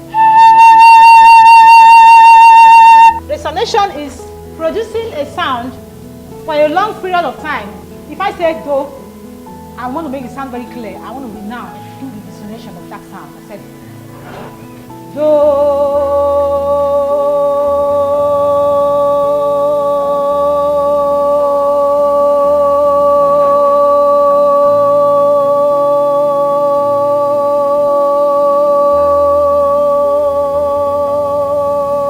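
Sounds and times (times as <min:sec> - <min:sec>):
woman singing a held note: 0:00.0 - 0:03.2, 0:15.1 - 0:32.0.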